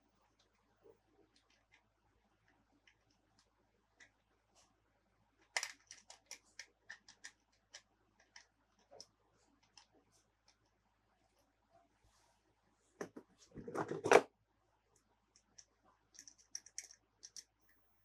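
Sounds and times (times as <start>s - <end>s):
plastic toy parts clicking: 5.4s - 9.9s, 15.4s - 17.5s.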